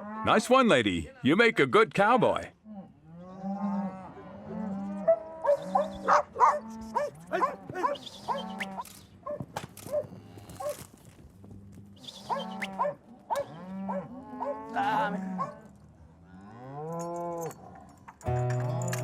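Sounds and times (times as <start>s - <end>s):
cattle lowing: 2.7s - 9.0s, 9.8s - 18.0s
dogs barking: 5.0s - 10.8s, 12.2s - 15.7s.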